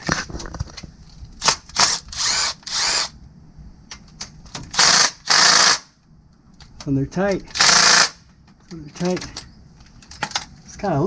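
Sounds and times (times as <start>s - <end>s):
power tool bursts: 1.4s - 3.2s, 4.7s - 5.9s, 7.5s - 8.2s.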